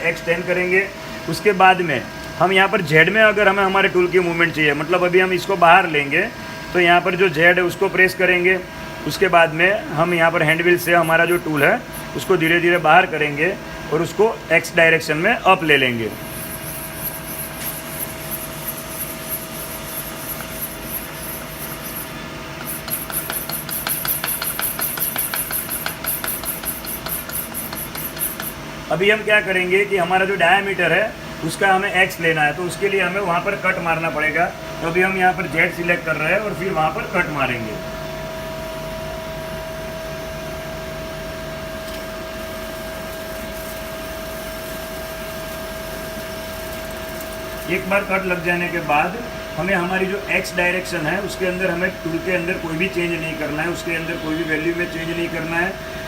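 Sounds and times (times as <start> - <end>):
lathe machine humming: 0.0 - 29.2
high pulsing hiss: 0.0 - 56.0.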